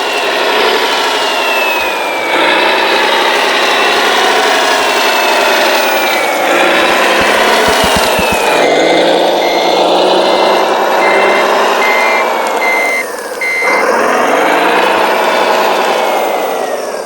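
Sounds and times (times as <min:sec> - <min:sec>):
reversing beeper: 0:05.1 - 0:17.0.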